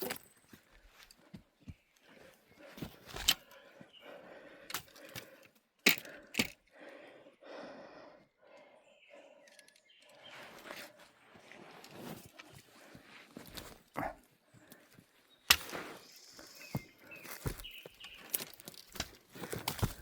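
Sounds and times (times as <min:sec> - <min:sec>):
footsteps through dry brush: 0:10.3 - 0:20.0
twigs snapping underfoot: 0:15.5 - 0:20.0.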